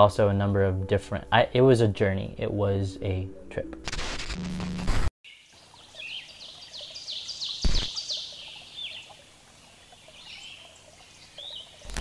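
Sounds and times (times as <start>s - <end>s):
faint outdoor background: 0.0s - 3.8s
birds chirping: 5.3s - 11.9s.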